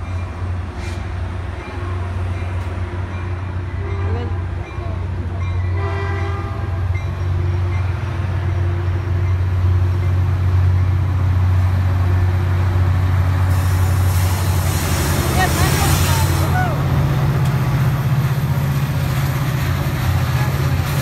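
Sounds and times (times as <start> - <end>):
diesel locomotive engine drone: 0.0 - 21.0
rushing of passing train: 0.0 - 21.0
train horn: 5.7 - 7.7.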